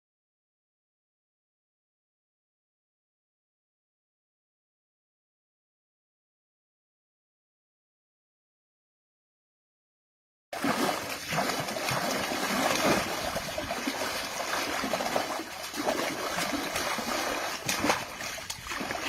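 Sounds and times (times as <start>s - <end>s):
water splashing and sloshing: 10.6s - 19.0s.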